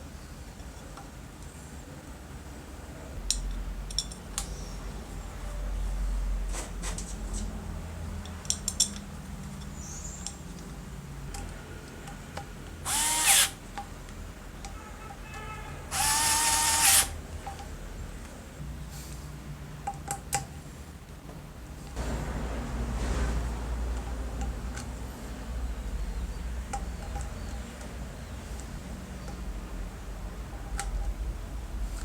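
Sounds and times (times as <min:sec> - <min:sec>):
power screwdriver motor whining: 0:12.9 - 0:13.6, 0:15.9 - 0:17.1.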